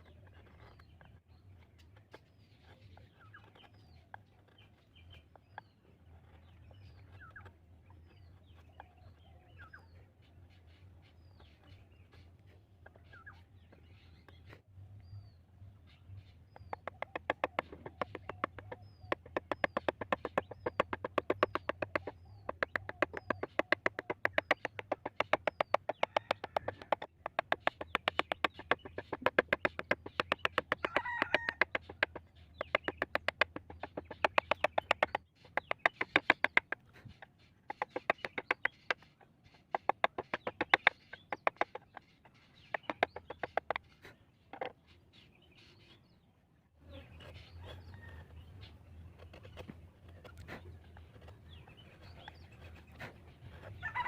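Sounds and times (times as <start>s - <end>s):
mallet tapping chisel into wood: 16.7s - 36.8s, 39.7s - 41.8s, 42.7s - 43.8s.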